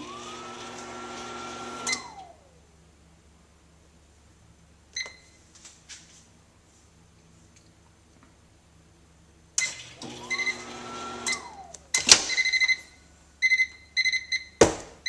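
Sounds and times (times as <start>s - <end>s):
microwave oven beeping: 0.0s - 2.4s, 9.6s - 14.6s
whining tone: 0.0s - 2.7s, 9.6s - 13.1s
microwave humming: 0.0s - 2.8s, 9.6s - 14.8s.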